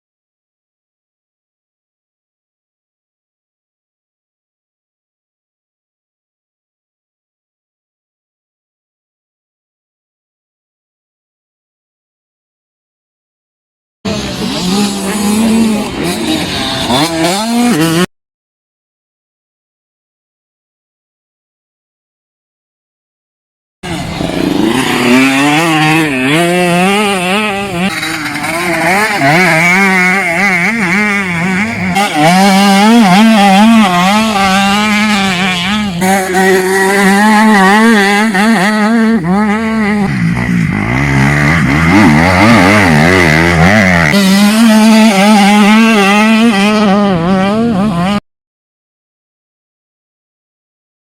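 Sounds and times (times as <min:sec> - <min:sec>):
motocross bike engines revving: 0:14.1 - 0:18.1, 0:23.8 - 0:48.2.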